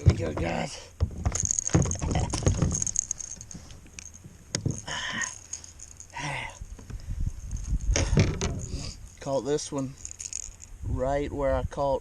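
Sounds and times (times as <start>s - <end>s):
gear knocking and rattling: 0.0s - 8.9s.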